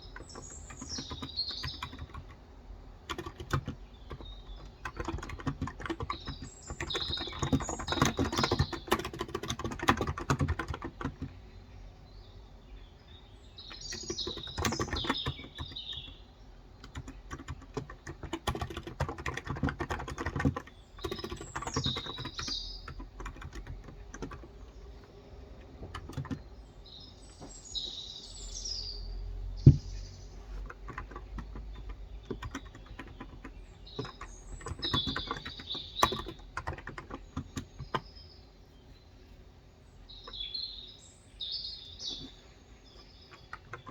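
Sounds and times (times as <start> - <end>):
keyboard typing: 0.0 - 11.4, 13.7 - 26.6, 29.6 - 38.1, 42.1 - 43.9
birds chirping: 0.0 - 43.9.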